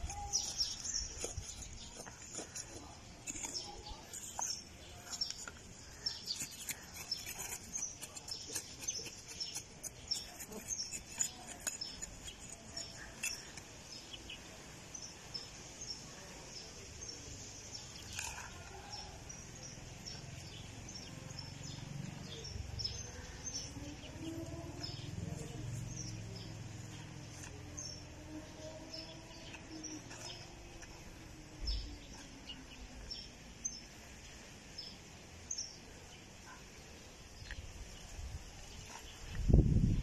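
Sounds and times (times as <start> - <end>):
trowel scraping dry soil: 0.0 - 36.2, 37.4 - 40.0
small birds chirping: 0.0 - 40.0.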